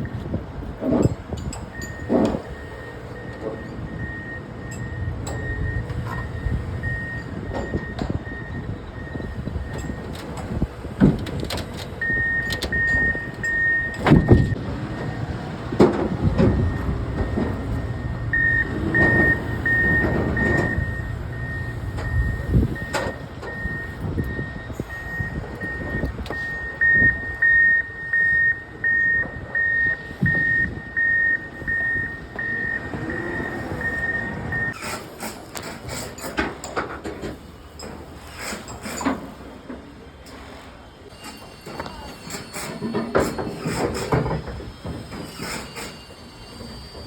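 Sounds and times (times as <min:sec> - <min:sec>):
low engine rumble: 0:00.0 - 0:34.8
backup alarm beeping: 0:01.7 - 0:34.8
heavy knocks and clanks: 0:09.7 - 0:24.2.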